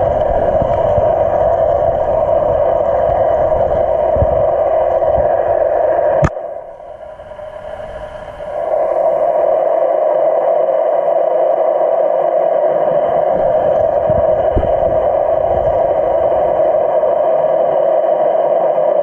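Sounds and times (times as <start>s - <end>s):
muffled rushing noise: 0.0s - 19.0s
dull low knocks: 12.8s - 17.8s.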